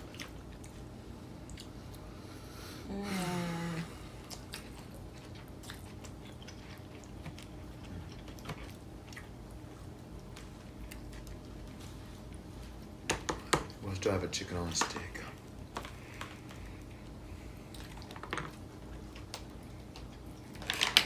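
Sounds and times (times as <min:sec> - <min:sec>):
people chewing food: 0:00.0 - 0:21.0
person humming falling pitch: 0:02.9 - 0:04.0.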